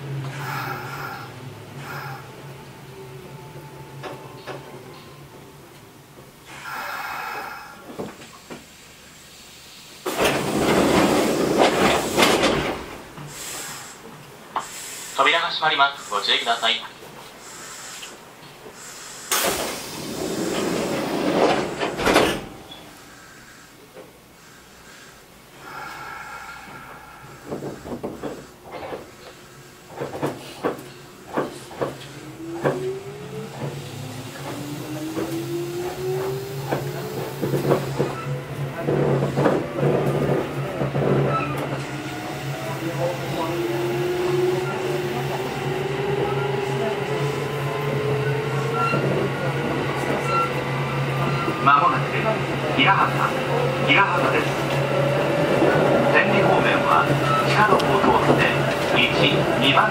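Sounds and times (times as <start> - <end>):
loud train air hiss: 0.0 - 2.9, 6.4 - 38.2
train wheels clacking over rail joints: 10.1 - 13.4, 25.7 - 42.2, 54.2 - 59.9.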